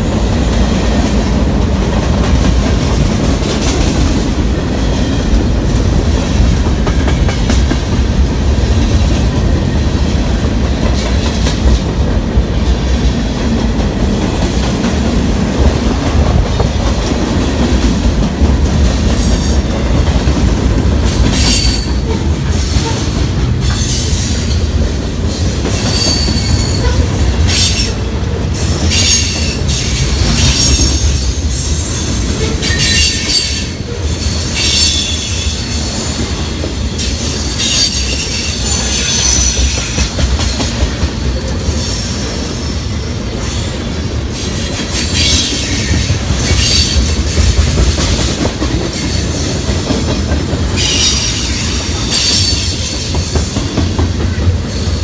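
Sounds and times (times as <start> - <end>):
train wheels rumbling on rail: 0.0 - 55.0
high-pitched wheel squeal: 25.8 - 27.9.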